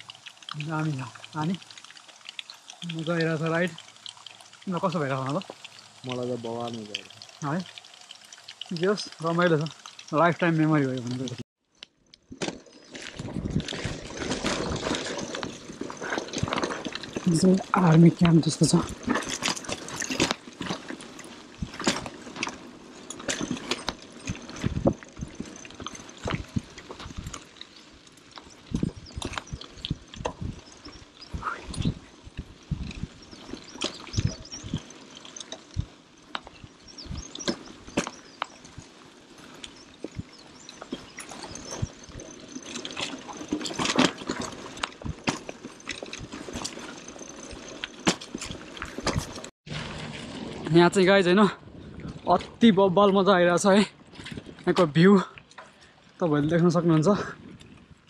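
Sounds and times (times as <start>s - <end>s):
steady hiss: 0.0s - 11.4s
mountain bike rattling: 0.0s - 58.0s
tyres crunching on loose stones: 0.0s - 58.0s.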